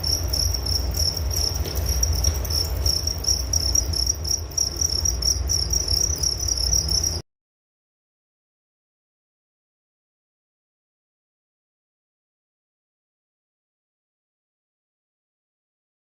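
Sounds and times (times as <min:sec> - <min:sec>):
crickets chirping: 0:00.0 - 0:07.2.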